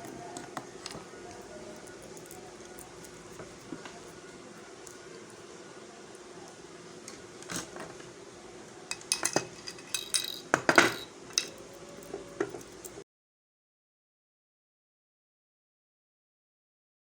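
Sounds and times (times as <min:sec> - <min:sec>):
faint steady hum: 0:00.0 - 0:13.0
small metal parts clinking: 0:00.8 - 0:04.2, 0:08.9 - 0:13.0.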